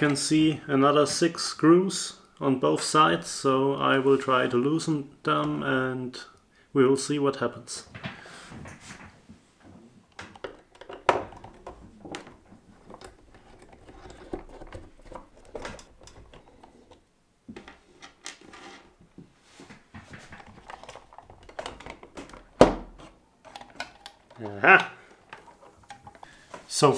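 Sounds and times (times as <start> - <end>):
handling plastic model: 10.0 - 26.9.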